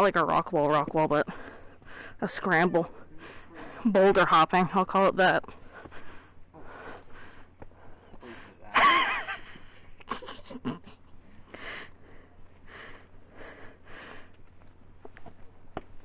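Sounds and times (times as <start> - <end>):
person breathing heavily: 1.2 - 4.0, 5.5 - 8.7, 11.2 - 14.6.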